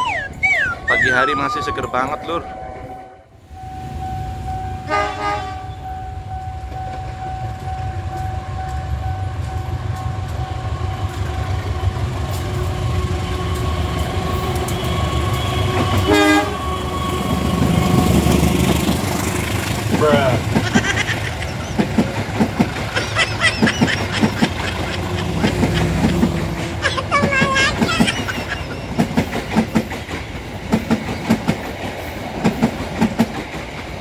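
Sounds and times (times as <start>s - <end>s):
diesel locomotive engine rumble: 0.0s - 34.0s
train horn toots: 2.3s - 3.4s, 4.8s - 5.9s, 13.0s - 18.6s.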